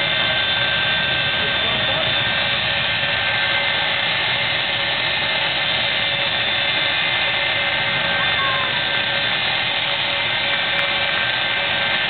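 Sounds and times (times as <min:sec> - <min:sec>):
jet engine turbine whine: 0:00.0 - 0:12.0.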